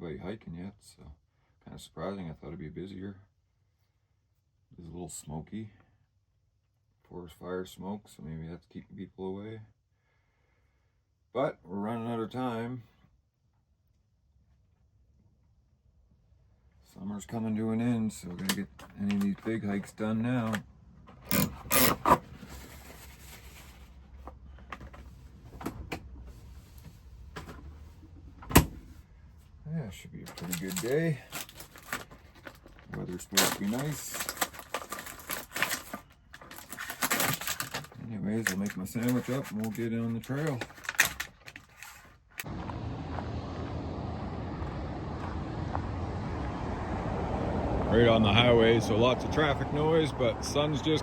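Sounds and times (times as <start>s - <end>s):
low rumble of highway traffic: 15.7s - 51.0s
rustling: 21.3s - 25.5s, 30.2s - 42.5s.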